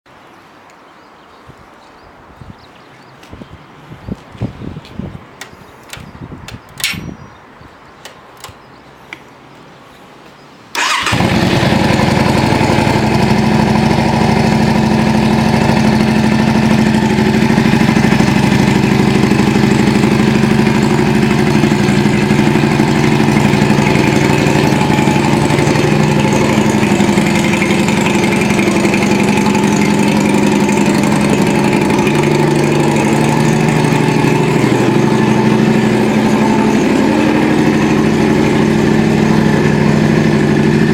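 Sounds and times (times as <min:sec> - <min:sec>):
motorcycle engine starting and idling: 0:10.7 - 0:40.9.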